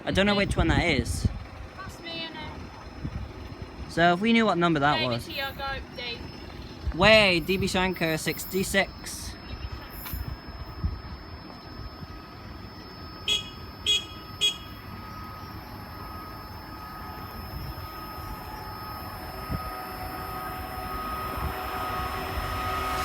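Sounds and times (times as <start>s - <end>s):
steady hum with held tones: 0.0s - 23.0s
car horn tooting: 13.3s - 14.8s.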